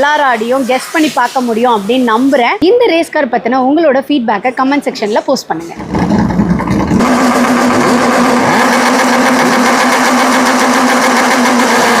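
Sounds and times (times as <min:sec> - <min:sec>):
race car engine at high revs: 0:05.8 - 0:12.0.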